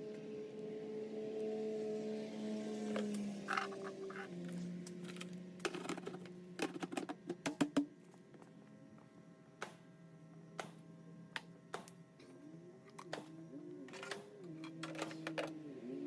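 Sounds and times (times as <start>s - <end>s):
clicks of handling parts and tools: 2.9s - 7.9s, 13.9s - 15.6s.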